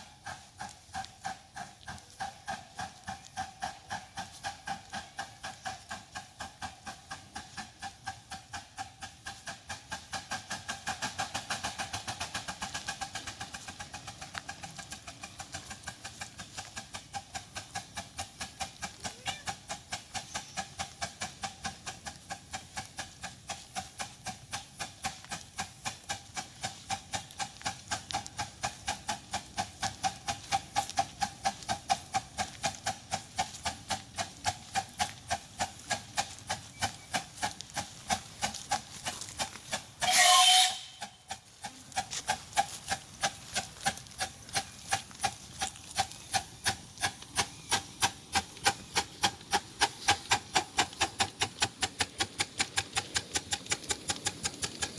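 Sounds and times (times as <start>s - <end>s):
steam locomotive exhaust beating: 0.0s - 54.9s
loud hiss of steam: 19.7s - 53.6s.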